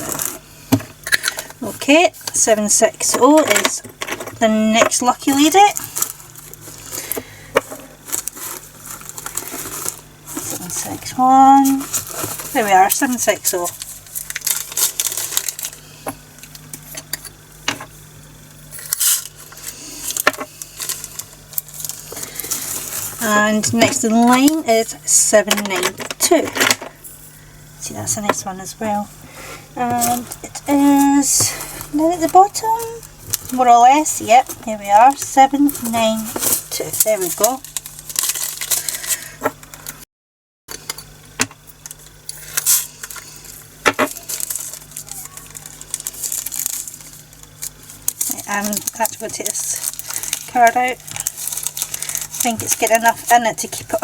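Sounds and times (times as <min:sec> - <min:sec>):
bags being handled: 0:04.7 - 0:16.3, 0:18.7 - 0:27.3, 0:29.6 - 0:39.4, 0:42.4 - 0:54.0
plastic beads pouring rattling: 0:43.0 - 0:53.4.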